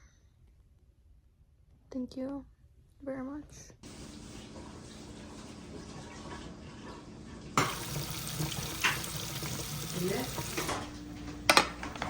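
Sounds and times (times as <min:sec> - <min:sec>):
water running from tap: 0:03.8 - 0:11.3.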